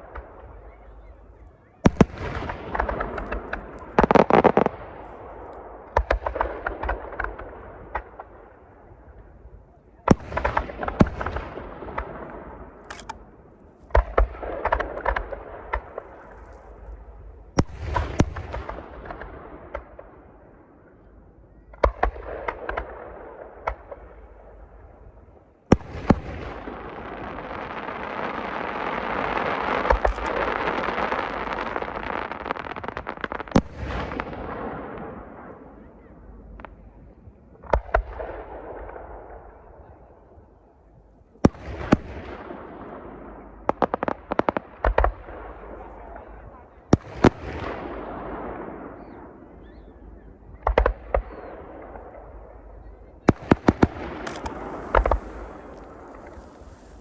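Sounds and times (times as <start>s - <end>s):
firework shells booming: 29.8s - 31.3s, 53.6s - 57.0s.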